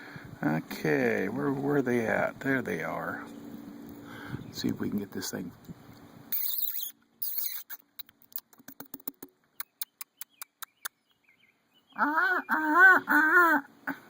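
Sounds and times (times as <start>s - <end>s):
loud squeaky calls: 6.3s - 8.4s
person making clicking sounds: 6.4s - 11.0s.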